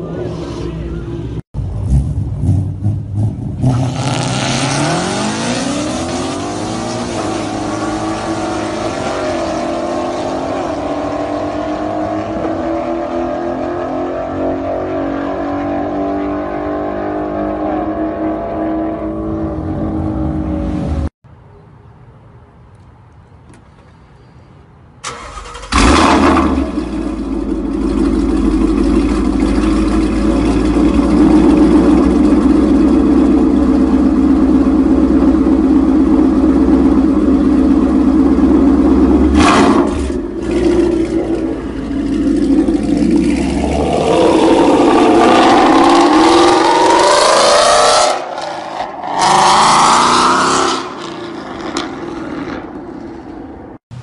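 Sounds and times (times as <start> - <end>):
v eight engines at full throttle: 0.0 - 21.1, 25.1 - 54.0
car engine starting and idling: 25.0 - 47.4.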